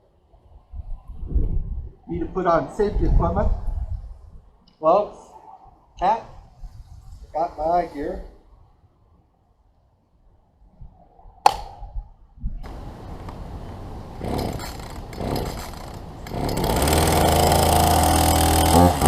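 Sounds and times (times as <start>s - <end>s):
chainsaw engine revving: 14.1s - 19.0s
chainsaw starter click: 14.2s - 19.0s.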